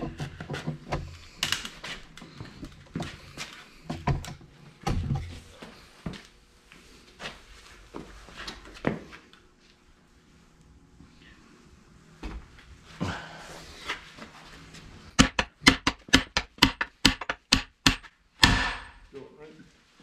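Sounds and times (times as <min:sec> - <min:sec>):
hammer knocking on metal driver: 0:15.2 - 0:19.0.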